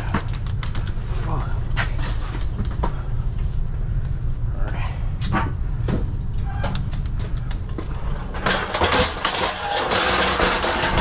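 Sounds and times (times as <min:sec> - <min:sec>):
rattling scrape of metal: 0:07.9 - 0:11.0.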